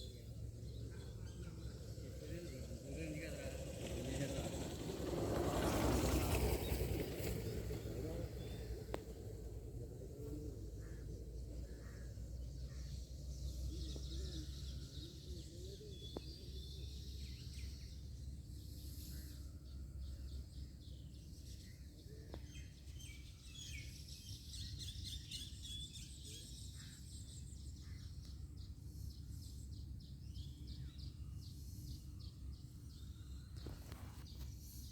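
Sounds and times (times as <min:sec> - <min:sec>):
low background rumble: 0:00.0 - 0:22.0
small birds chirping: 0:00.0 - 0:34.9.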